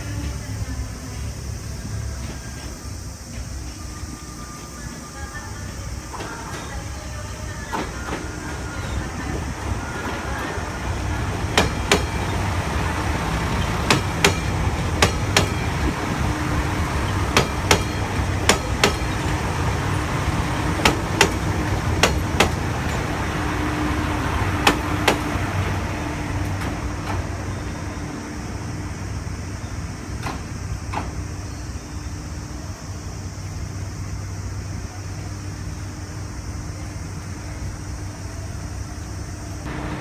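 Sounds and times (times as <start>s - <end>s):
low railcar running hum: 0.0s - 40.0s
wheels clicking over rail joints: 6.0s - 27.7s.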